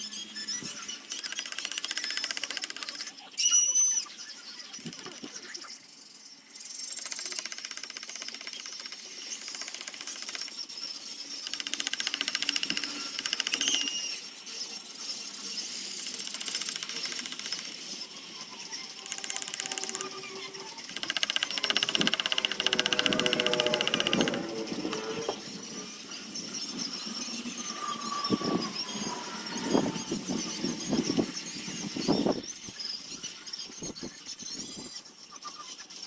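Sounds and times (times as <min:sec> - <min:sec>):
power carving tool cutting wood: 0:07.1 - 0:14.2, 0:18.7 - 0:32.3.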